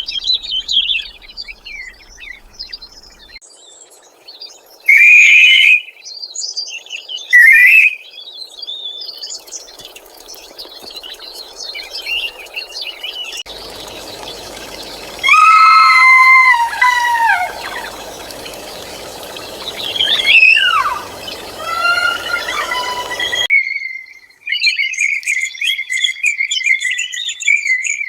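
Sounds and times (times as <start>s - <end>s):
birds chirping: 0.0s - 3.4s, 7.3s - 23.5s
animal squealing calls: 13.6s - 23.5s.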